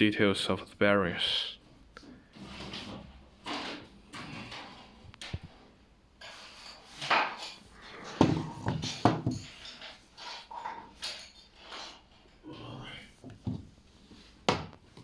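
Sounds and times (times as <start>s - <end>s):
metal part rubs and knocks: 6.2s - 12.3s.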